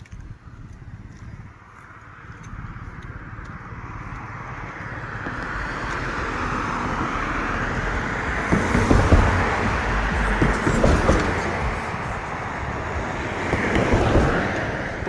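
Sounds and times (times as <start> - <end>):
vehicle approaching: 0.0 - 15.0
heavy low rumbling and thumps: 5.3 - 14.4.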